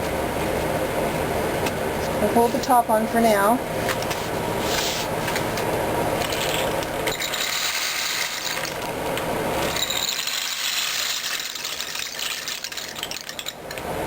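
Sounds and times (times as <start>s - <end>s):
rain stick beans trickling: 6.2s - 13.9s.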